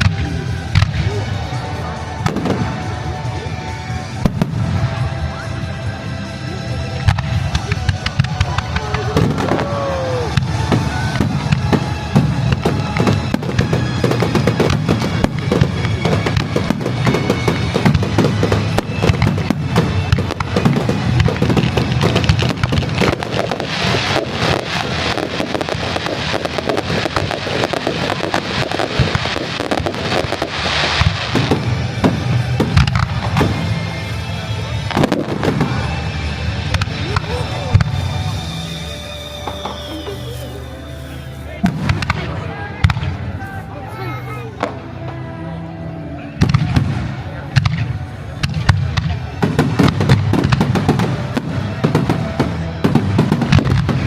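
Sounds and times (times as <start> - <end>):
aerial fireworks bursting and crackling: 0.0 - 43.8, 46.4 - 54.0
firework shell whistle: 7.6 - 42.1.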